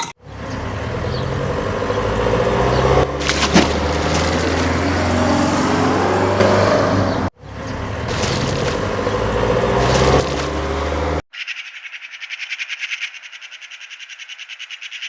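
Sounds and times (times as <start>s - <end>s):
vehicle engine humming: 0.2s - 11.2s.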